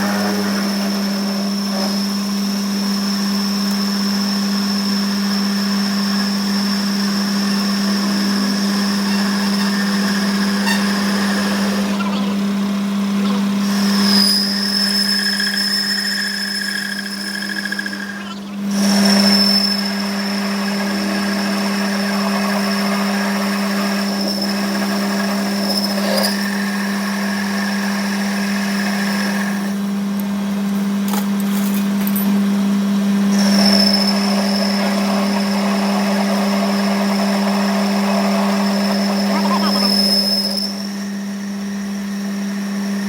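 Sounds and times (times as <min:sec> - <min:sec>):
high whine: 0:00.0 - 0:04.5
machine tool humming: 0:00.0 - 0:31.4, 0:32.3 - 0:43.0.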